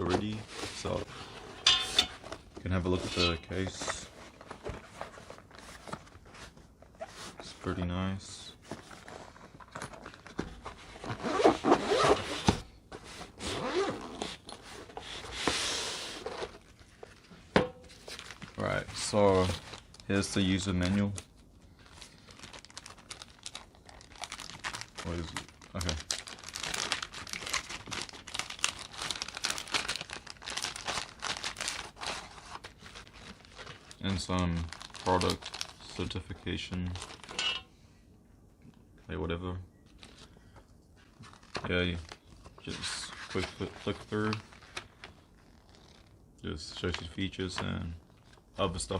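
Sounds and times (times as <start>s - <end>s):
paper crinkling and rustling: 2.2s - 12.3s, 16.2s - 37.6s, 41.0s - 46.1s
zipper being pulled: 11.1s - 12.5s, 13.4s - 14.4s.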